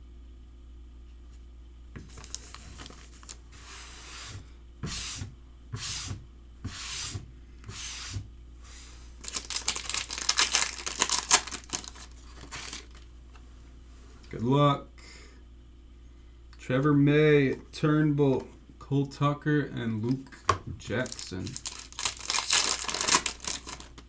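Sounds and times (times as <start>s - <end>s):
card packs ripping open: 2.1s - 3.4s, 9.2s - 13.1s, 20.9s - 24.0s
wrappers crinkling: 2.1s - 3.5s, 9.2s - 13.1s, 20.9s - 24.0s.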